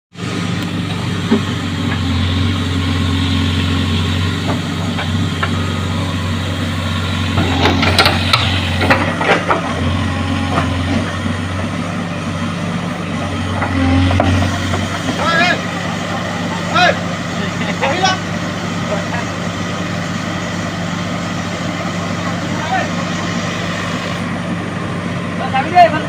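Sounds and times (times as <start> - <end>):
excavator diesel engine running: 0.1 - 26.0
knocks and clatters: 7.3 - 9.8.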